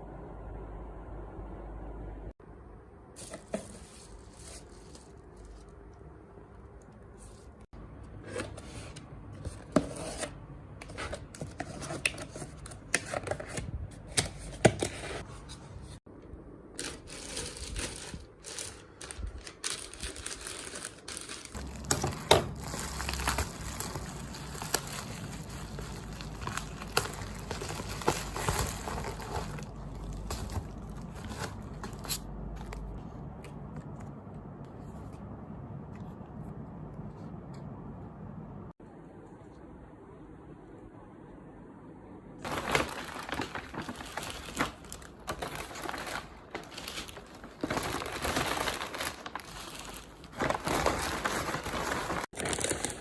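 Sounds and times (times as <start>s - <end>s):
paper and plastic tearing: 16.8s - 32.3s, 42.4s - 53.0s.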